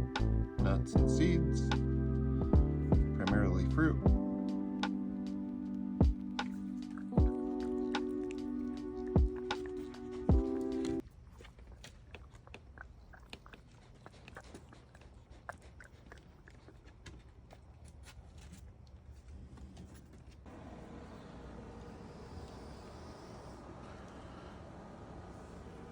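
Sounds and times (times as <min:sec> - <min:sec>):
animal chewing crunching clicks: 0:06.4 - 0:19.0.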